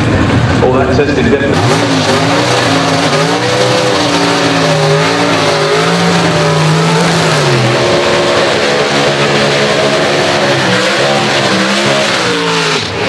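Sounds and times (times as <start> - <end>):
drag racing engines revving: 0.0 - 13.0.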